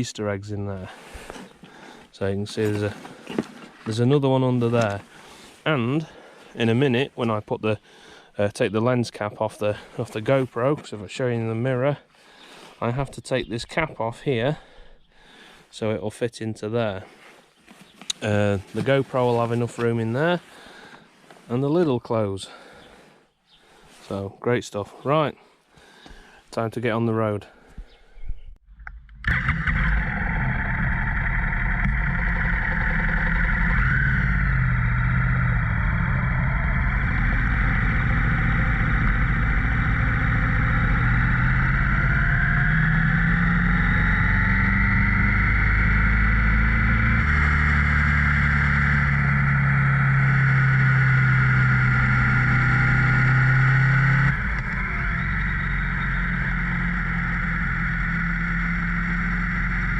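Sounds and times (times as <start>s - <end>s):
motorcycle engine running: 2.4s - 7.0s, 18.1s - 20.6s, 29.2s - 59.9s.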